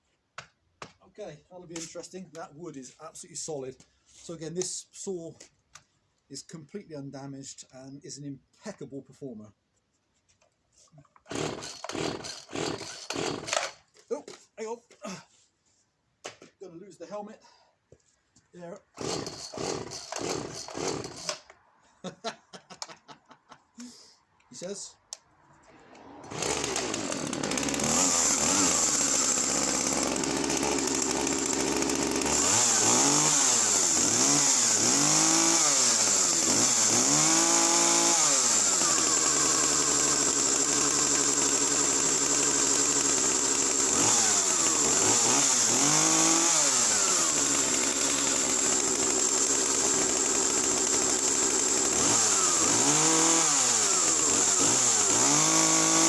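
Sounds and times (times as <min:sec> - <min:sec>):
chainsaw revving: 0:11.3 - 0:13.8, 0:19.0 - 0:21.6, 0:25.9 - 0:56.0.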